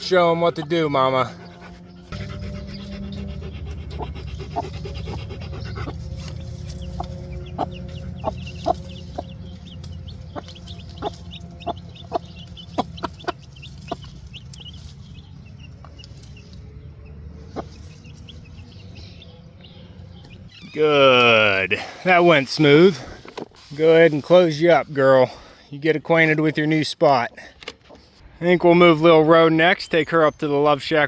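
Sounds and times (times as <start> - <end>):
hen clucking: 0.0 - 20.5
low rumble: 0.0 - 20.6
chicks peeping: 0.0 - 20.8.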